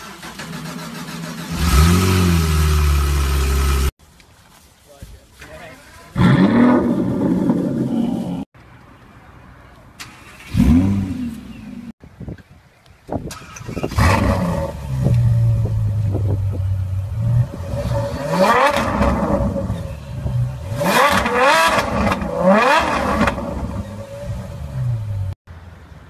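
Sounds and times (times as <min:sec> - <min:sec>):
car engine starting and revving: 0:00.0 - 0:03.9, 0:06.2 - 0:08.5, 0:10.0 - 0:12.0, 0:13.3 - 0:25.4.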